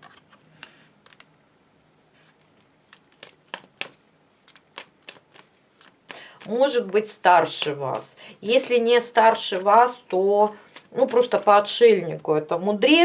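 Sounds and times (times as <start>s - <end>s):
cards clicking and snapping: 2.4s - 11.8s.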